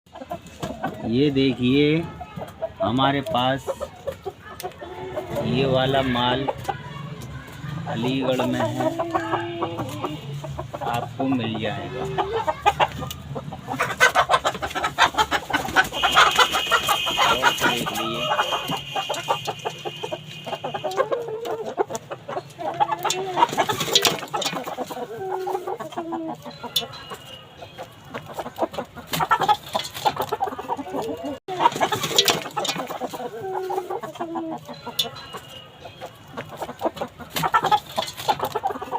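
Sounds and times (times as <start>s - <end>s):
chickens clucking: 0.1s - 38.9s.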